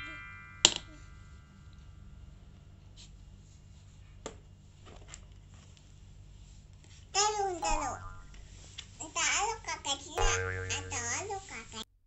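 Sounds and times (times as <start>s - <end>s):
low hum: 10.2s - 11.3s.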